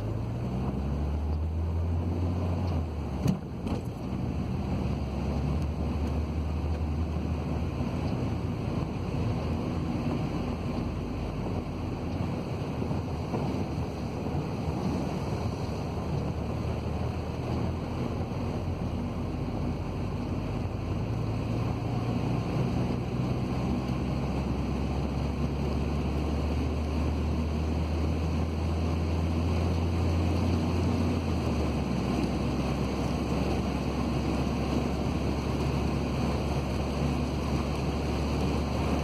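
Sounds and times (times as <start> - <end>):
car engine drone: 0.0 - 39.0
rain and wet-road tyre noise: 0.0 - 39.0.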